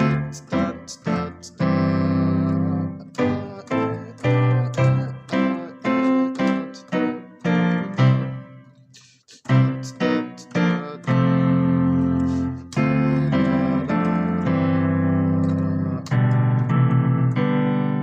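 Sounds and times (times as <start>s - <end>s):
gospel piano chords: 0.0s - 18.0s.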